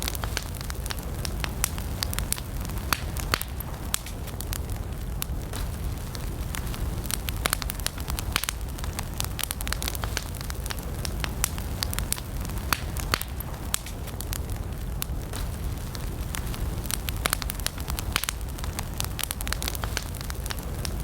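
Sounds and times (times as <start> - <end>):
campfire crackling and popping: 0.0 - 21.0
low rumble of flames: 0.0 - 21.0.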